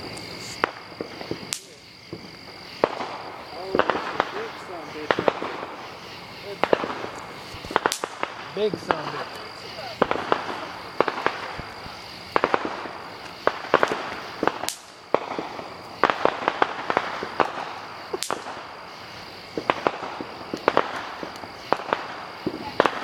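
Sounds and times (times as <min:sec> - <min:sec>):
fireworks popping and crackling: 0:00.0 - 0:23.0
whistling firework shrieks: 0:00.0 - 0:23.0.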